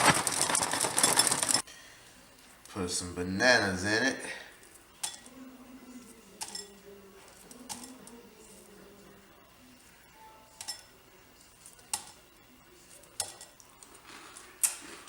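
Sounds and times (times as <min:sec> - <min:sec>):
utensil clinking against dish: 0:05.0 - 0:05.4, 0:06.0 - 0:08.6, 0:10.4 - 0:12.2, 0:13.0 - 0:13.9.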